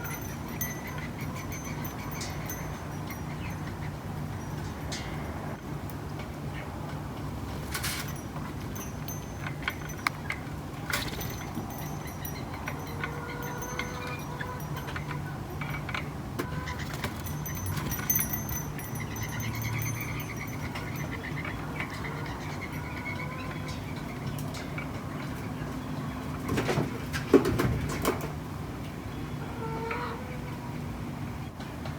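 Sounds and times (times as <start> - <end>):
sharp clicks and clinks: 0.0 - 3.8, 7.7 - 16.0, 17.0 - 21.2
distant traffic hum: 0.0 - 31.9.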